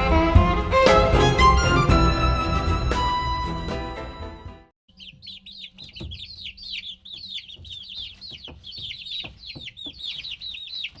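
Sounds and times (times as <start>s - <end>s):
baby chicks peeping: 4.9s - 11.0s.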